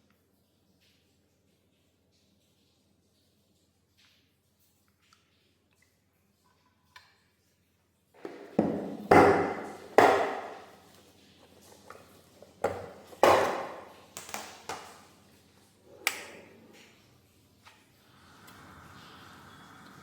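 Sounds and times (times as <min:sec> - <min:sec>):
hard objects knocking and clinking: 0:08.2 - 0:10.9, 0:11.7 - 0:14.9.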